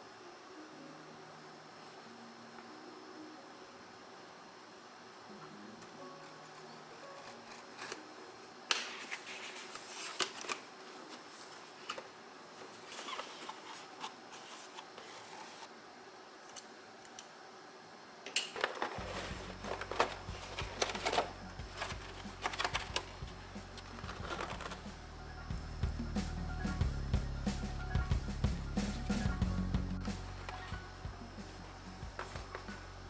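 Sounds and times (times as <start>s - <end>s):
packaging scraping and clicking: 9.0s - 15.7s, 18.5s - 24.9s
low steady hum: 18.6s - 33.0s.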